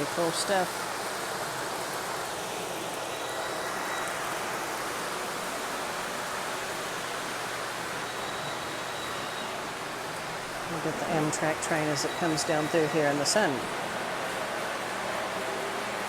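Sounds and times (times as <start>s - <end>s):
fountain water splashing: 0.0s - 3.1s.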